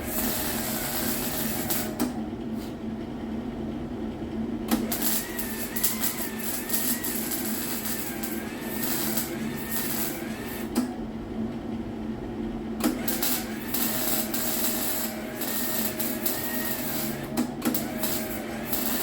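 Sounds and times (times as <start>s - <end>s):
welding arc crackling on metal: 0.0s - 2.2s, 4.7s - 10.8s, 12.8s - 19.0s
welder click: 4.7s - 10.9s, 12.8s - 19.0s.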